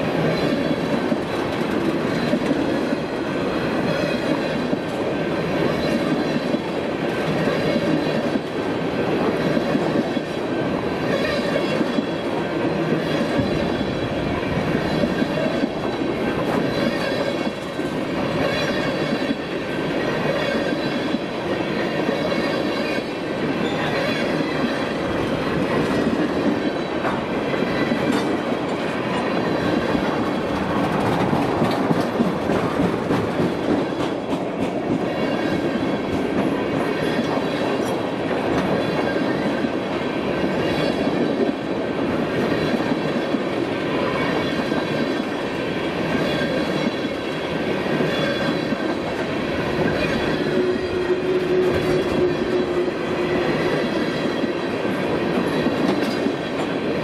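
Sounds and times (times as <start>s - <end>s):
train wheels rumbling on rail: 0.0s - 57.0s
clicking over rail joints: 23.9s - 39.2s.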